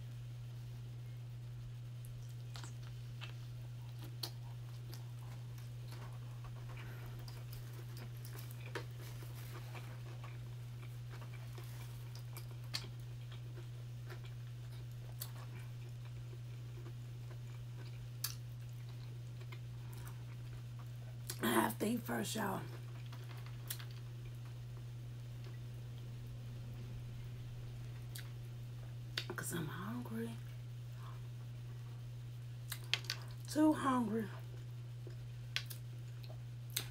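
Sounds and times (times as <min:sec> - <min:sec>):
steady low hum: 0:00.0 - 0:36.9
chewing and biting food: 0:02.0 - 0:21.4, 0:22.7 - 0:29.4, 0:32.6 - 0:33.5, 0:34.4 - 0:36.9
wet mouth clicks: 0:35.5 - 0:35.9.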